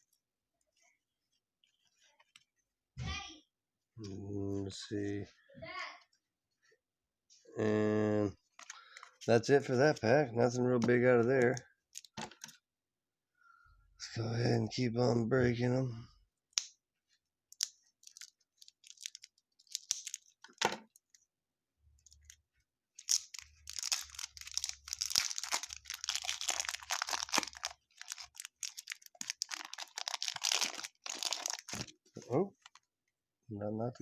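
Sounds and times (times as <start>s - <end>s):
wrapper tearing and crinkling: 17.5s - 20.4s, 22.2s - 32.0s.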